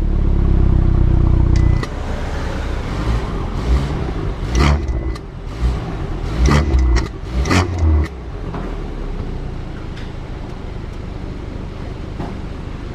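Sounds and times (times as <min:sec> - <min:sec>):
car engine throttle blips: 0:00.0 - 0:09.3
car engine idling: 0:00.0 - 0:12.9.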